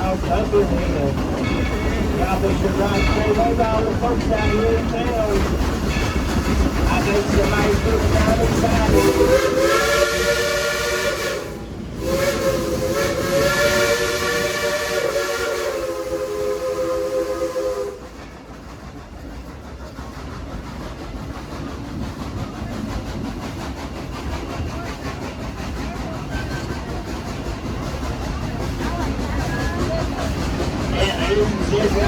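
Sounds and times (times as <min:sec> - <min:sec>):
train rolling along: 0:00.0 - 0:32.0
steam locomotive whistle chord: 0:08.9 - 0:18.0.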